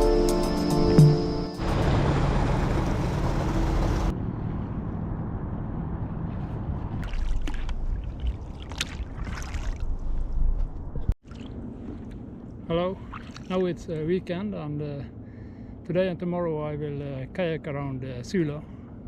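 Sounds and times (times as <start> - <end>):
wind rumbling on microphone: 4.2 - 12.3
paddle splashing water: 7.0 - 10.2, 11.2 - 12.3, 13.0 - 13.6.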